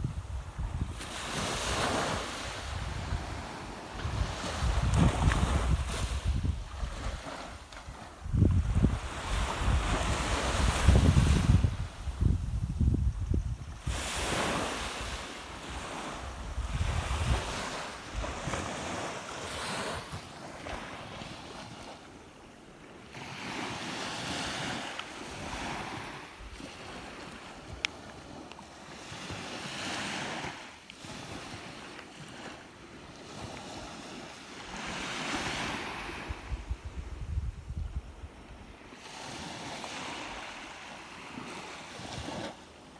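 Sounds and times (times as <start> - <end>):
sea waves breaking on shore: 0.0 - 12.9, 13.6 - 37.2, 37.9 - 42.9
wind buffeting microphone: 0.0 - 18.6, 34.7 - 40.9.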